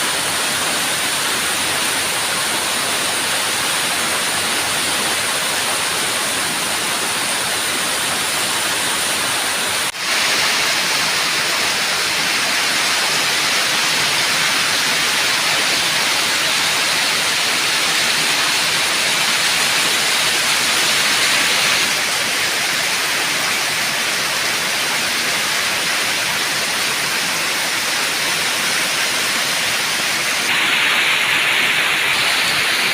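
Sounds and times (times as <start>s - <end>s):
heavy rain pouring: 0.0s - 32.9s.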